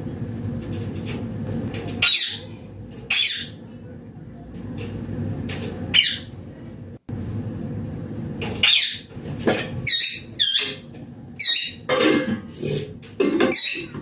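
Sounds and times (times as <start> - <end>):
parakeet squeaky calls: 2.0 - 2.4, 3.1 - 3.6, 5.9 - 6.3, 8.6 - 9.1, 9.8 - 10.8, 11.4 - 11.8.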